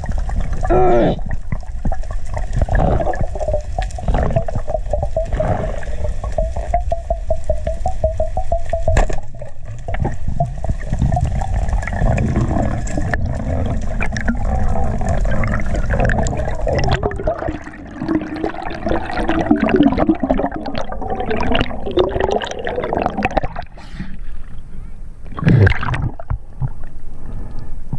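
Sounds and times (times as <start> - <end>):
gurgling bubbles: 0.0 - 23.8, 25.3 - 26.8
underwater rushing water: 0.0 - 23.8, 25.3 - 26.9.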